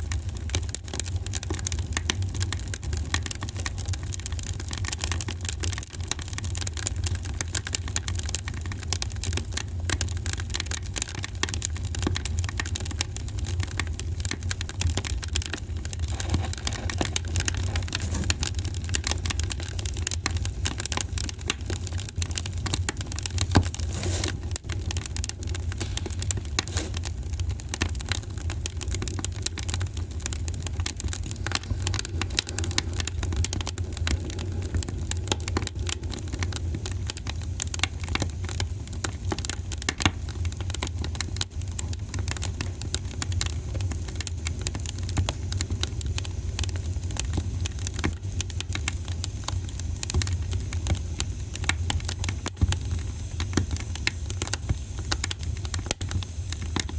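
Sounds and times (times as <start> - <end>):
wood fire crackling and popping: 0.0 - 56.9.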